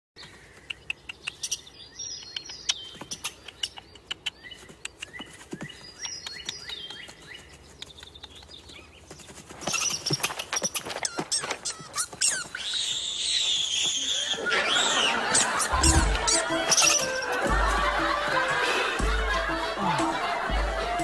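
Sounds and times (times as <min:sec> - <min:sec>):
small birds chirping: 0:00.2 - 0:17.5
sharp clicks: 0:00.6 - 0:05.2, 0:06.0 - 0:07.2.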